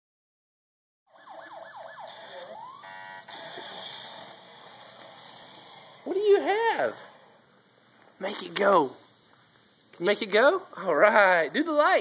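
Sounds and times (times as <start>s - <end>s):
toy police siren yelps: 1.1s - 4.4s
buzzing horn tone: 2.4s - 4.4s
faint hiss: 3.4s - 11.9s.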